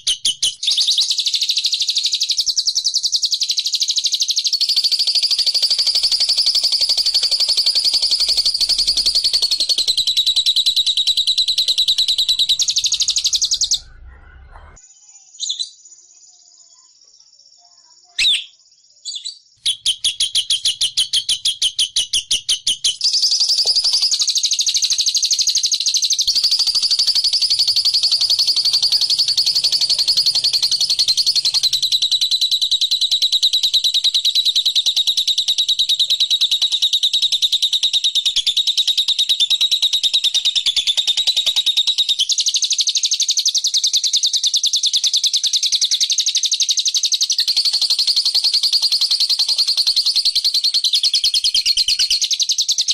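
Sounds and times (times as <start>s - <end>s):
songbird trilling: 4.6s - 14.1s, 18.2s - 38.6s, 46.7s - 52.9s.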